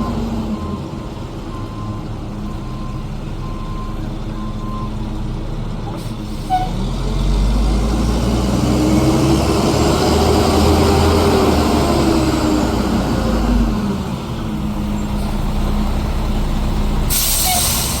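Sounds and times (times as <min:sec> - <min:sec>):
truck diesel engine rumbling: 0:00.0 - 0:18.0
loud hiss: 0:17.1 - 0:18.0.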